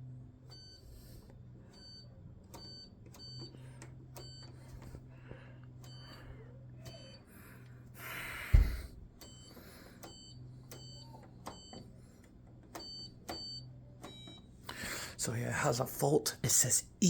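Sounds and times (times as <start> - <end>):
faint low hum: 0.0 - 17.0
loud thump: 8.5 - 8.9.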